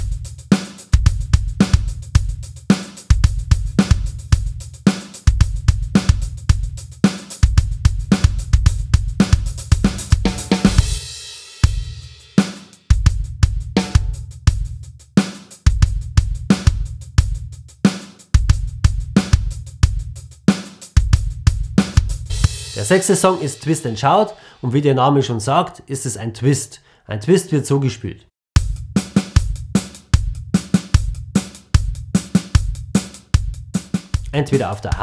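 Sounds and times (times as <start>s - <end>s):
drum kit groove: 0.0s - 25.0s, 28.6s - 35.0s
cymbal crash: 22.3s - 23.7s.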